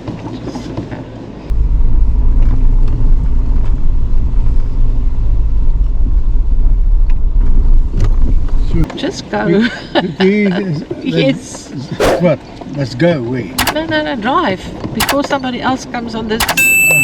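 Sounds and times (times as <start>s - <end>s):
car rumbling: 1.5s - 8.9s.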